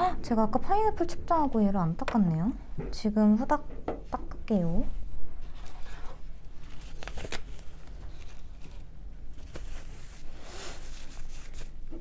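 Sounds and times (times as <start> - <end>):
rubbing and rustling: 5.4 - 12.0.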